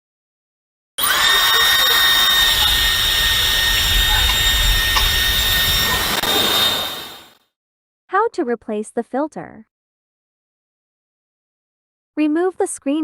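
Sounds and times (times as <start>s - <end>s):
hair dryer blowing: 1.0s - 7.4s.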